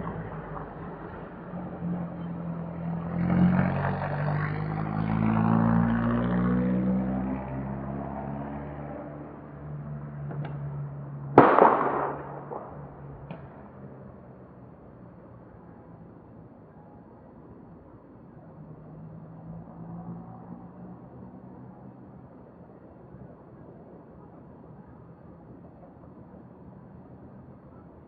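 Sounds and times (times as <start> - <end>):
loud bang with echo: 11.4 - 13.4.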